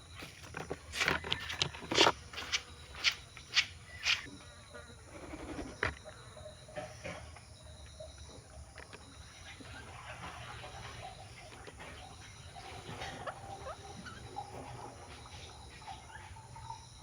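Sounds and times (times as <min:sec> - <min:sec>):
faint bird calls: 0:00.0 - 0:17.0
birds pecking clicks: 0:00.4 - 0:04.3.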